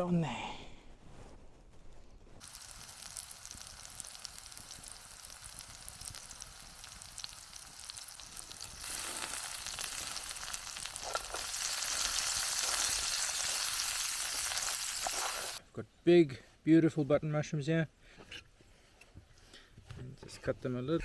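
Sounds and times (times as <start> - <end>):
onions sizzling in oil: 2.4 - 15.6.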